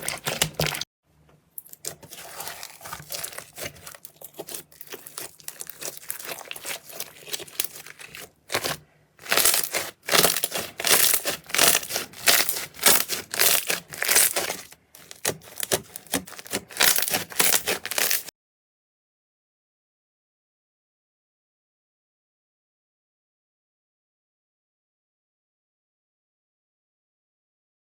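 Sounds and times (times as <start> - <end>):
slime squished by hand: 0.0 - 0.8, 1.6 - 18.3.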